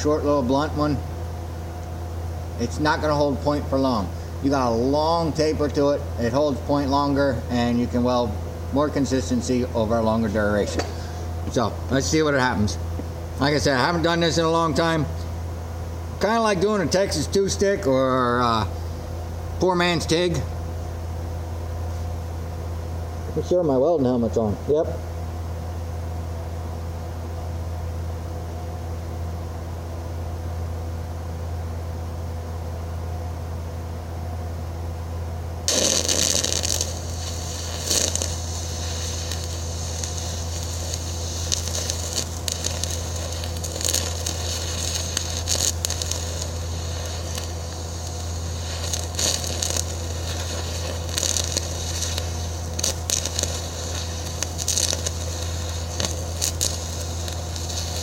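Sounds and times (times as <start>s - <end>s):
steady low hum: 0.0s - 58.0s
welding arc crackling: 1.9s - 15.3s, 16.1s - 18.7s, 35.6s - 58.0s.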